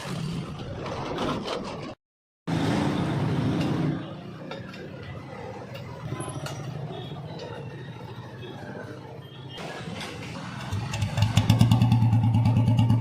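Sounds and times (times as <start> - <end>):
motorcycle engine running: 10.6 - 13.0.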